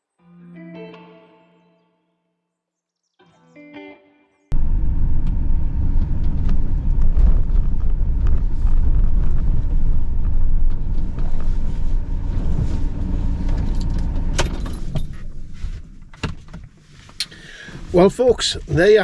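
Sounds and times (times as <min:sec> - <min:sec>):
road and engine rumble: 0:04.5 - 0:19.0.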